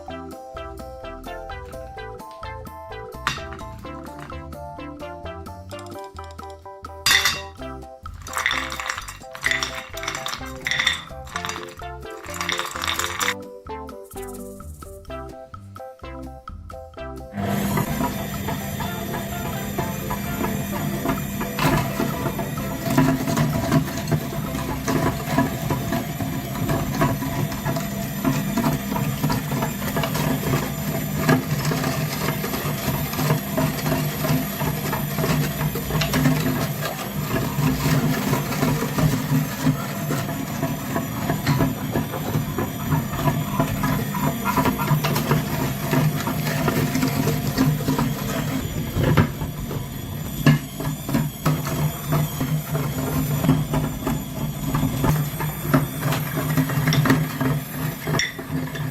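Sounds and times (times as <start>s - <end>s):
clattering clicks and knocks: 3.1s - 4.6s, 5.7s - 13.4s, 17.5s - 58.9s
small motor humming: 17.4s - 58.9s.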